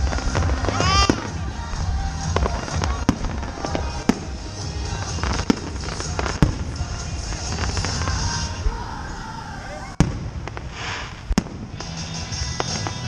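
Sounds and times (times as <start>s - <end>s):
fireworks bangs: 0.0s - 13.0s
fireworks rumbling: 0.0s - 13.0s.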